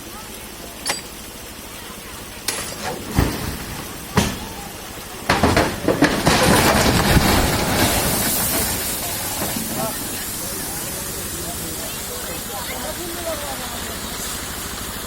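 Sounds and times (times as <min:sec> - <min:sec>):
hammer striking a truck: 0:00.8 - 0:01.2, 0:02.5 - 0:08.7
rushing clattering crash: 0:02.5 - 0:11.3.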